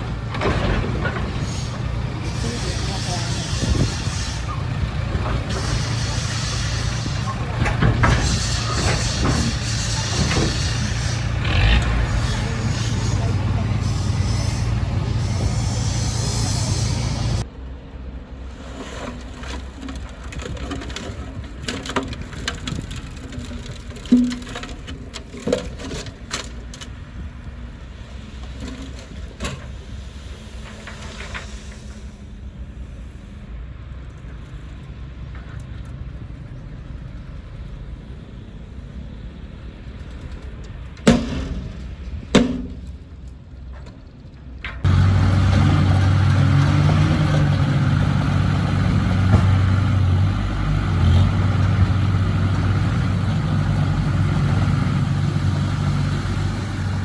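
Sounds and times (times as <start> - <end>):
diesel engine running: 0.0 - 17.5, 44.8 - 57.0.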